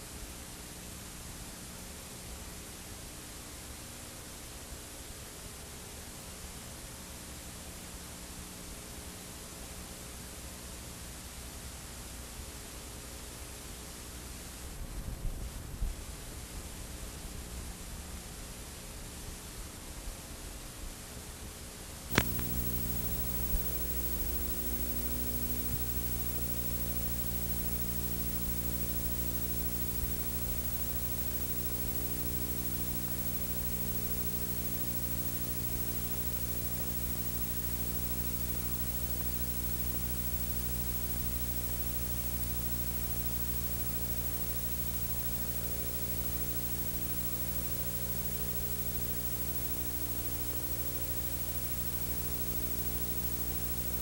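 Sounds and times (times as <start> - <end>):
low electrical hum: 22.1 - 54.0
static hiss: 22.1 - 54.0.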